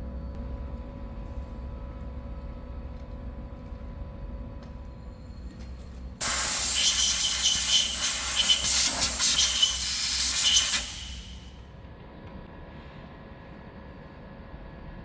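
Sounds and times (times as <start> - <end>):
compressed air blow gun hissing: 6.2 - 11.5.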